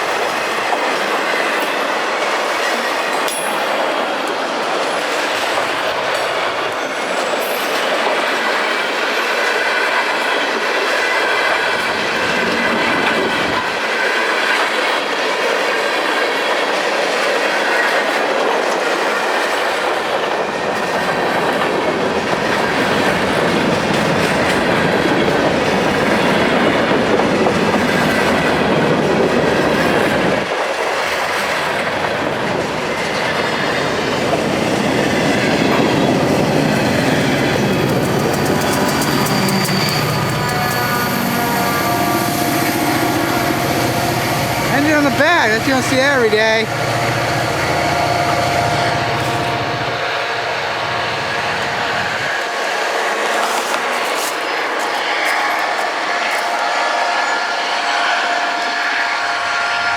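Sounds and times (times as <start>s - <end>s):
train wheels clattering on track: 0.0s - 59.9s
wheels squealing: 35.4s - 45.6s, 46.7s - 56.7s.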